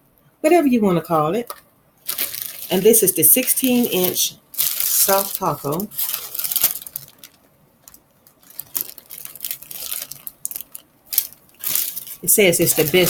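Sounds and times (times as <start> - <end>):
plastic packaging crinkling: 2.0 - 13.0.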